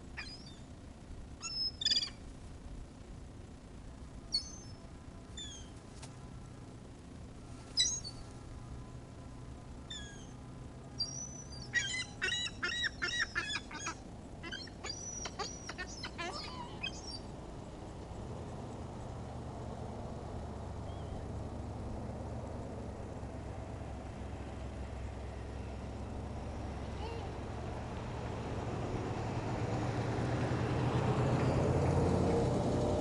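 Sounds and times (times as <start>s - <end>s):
low engine-like rumble: 0.0s - 33.0s
seagulls calling: 11.0s - 17.3s.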